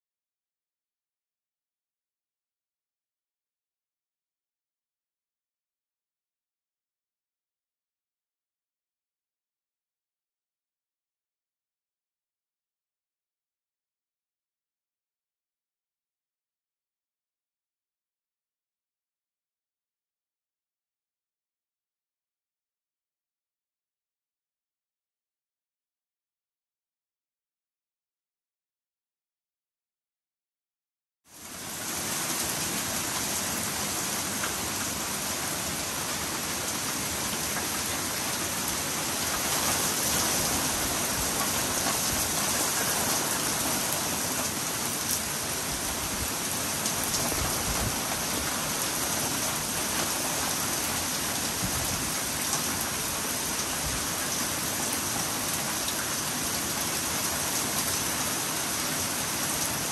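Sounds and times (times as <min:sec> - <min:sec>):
heavy rain hissing: 0:31.4 - 0:59.9.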